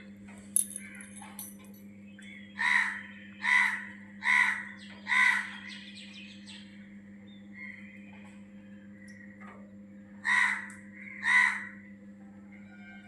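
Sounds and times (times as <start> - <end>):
birds making harsh calls: 2.6 - 6.2.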